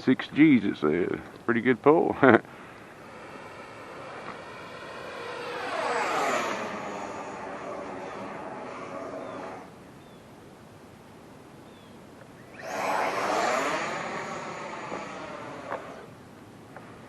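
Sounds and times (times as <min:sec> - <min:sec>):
model jet whine flying by: 0:02.9 - 0:09.8, 0:12.6 - 0:16.2.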